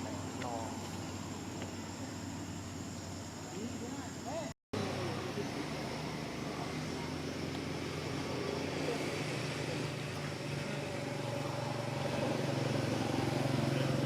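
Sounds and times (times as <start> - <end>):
vehicle engine running: 4.8 - 14.0.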